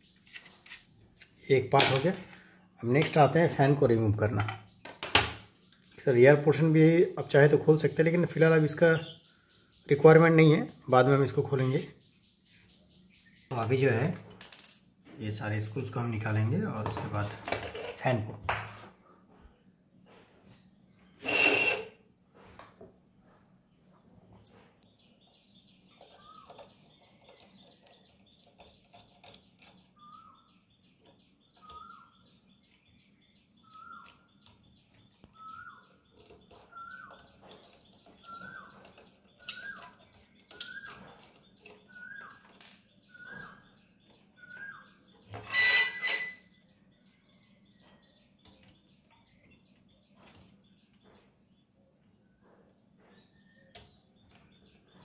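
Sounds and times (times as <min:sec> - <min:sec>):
bird calling: 0:25.3 - 0:33.0, 0:33.6 - 0:46.6.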